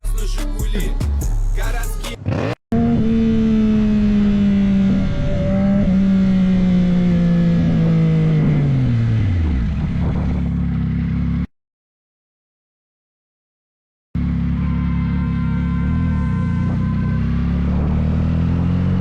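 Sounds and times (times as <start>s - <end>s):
motorcycle engine running: 2.2s - 11.5s, 14.2s - 19.0s.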